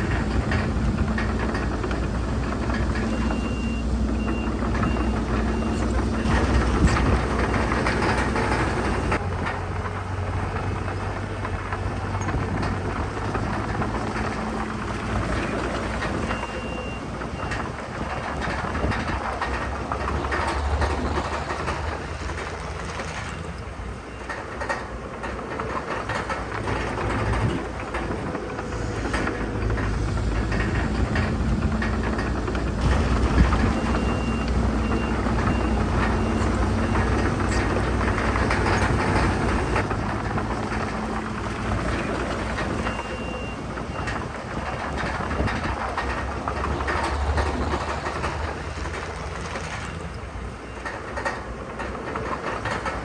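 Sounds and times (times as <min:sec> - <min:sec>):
diesel engines running under load: 0:00.0 - 0:53.0
knocks and rattles: 0:00.0 - 0:53.0
reversing alarm beeps: 0:03.0 - 0:09.2, 0:32.8 - 0:39.8, 0:42.7 - 0:44.3.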